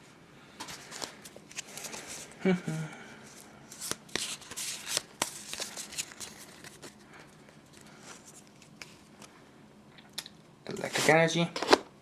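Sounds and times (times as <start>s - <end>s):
cards rustling: 0.6s - 2.4s, 3.3s - 9.3s
foil wrapper crinkling and tearing: 3.8s - 7.0s.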